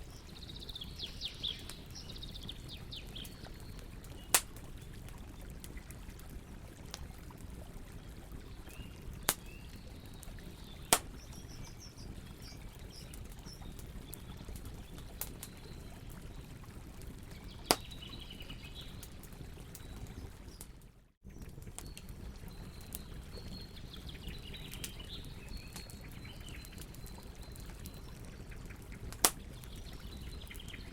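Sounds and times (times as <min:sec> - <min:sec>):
campfire burning: 0:00.0 - 0:30.9
burning wood popping: 0:03.0 - 0:07.4, 0:08.6 - 0:12.3, 0:17.3 - 0:18.2, 0:24.8 - 0:29.8.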